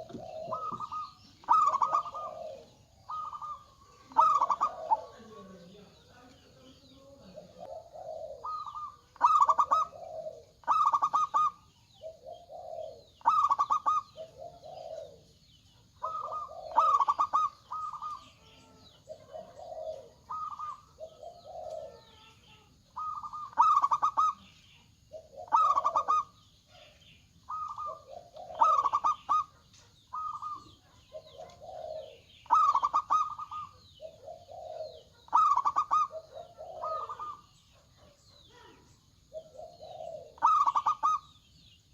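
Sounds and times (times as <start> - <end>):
doves cooing: 0.0 - 41.9.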